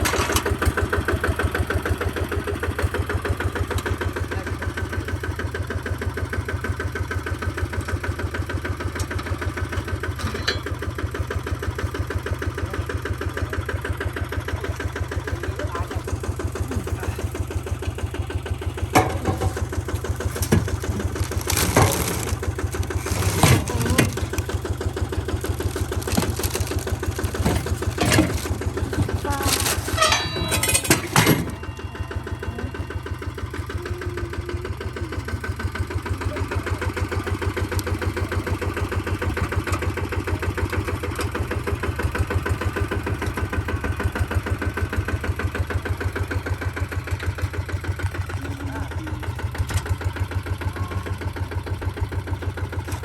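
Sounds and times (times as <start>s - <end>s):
tractor diesel engine idling: 0.0s - 53.0s
sharp knocks and clanks: 10.1s - 10.8s, 18.9s - 24.6s, 25.8s - 31.7s.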